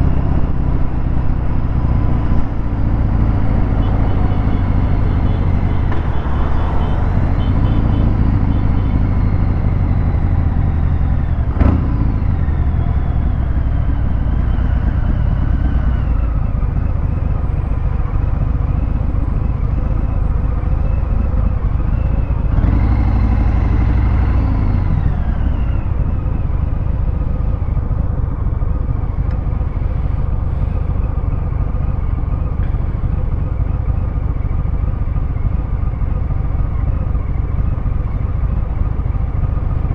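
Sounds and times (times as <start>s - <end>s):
motorcycle engine revving: 0.0s - 17.0s, 19.0s - 27.8s.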